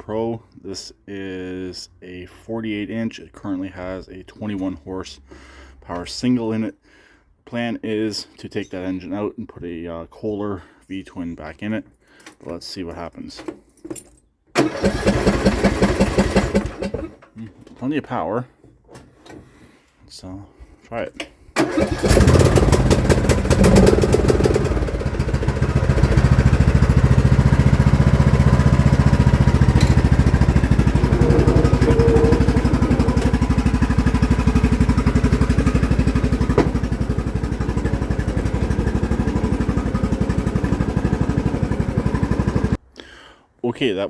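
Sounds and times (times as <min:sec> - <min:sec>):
riding mower engine running: 0:14.6 - 0:17.2, 0:21.6 - 0:42.8.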